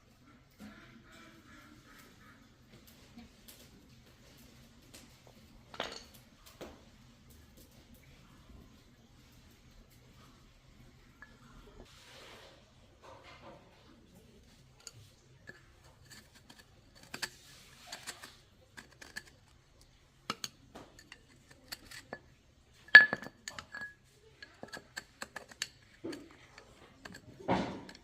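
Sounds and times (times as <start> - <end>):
metal tools clinking: 20.2 - 28.0.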